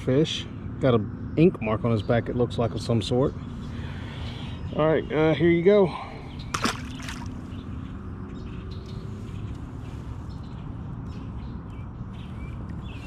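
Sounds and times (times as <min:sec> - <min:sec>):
short water splash: 0:06.5 - 0:07.4.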